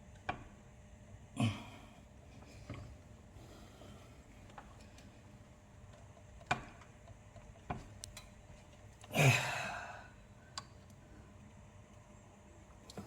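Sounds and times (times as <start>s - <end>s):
man sighing: 9.1s - 10.1s.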